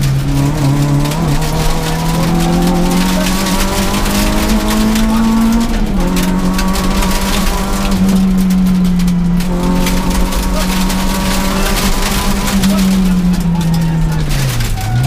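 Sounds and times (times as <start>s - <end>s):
car engine revving from inside: 0.0s - 15.0s.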